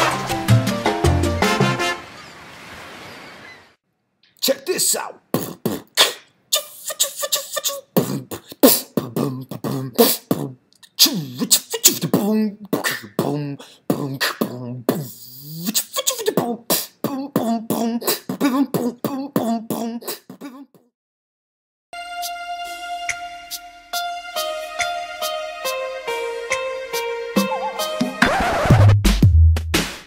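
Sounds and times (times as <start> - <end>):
person beatboxing: 4.4 - 20.8.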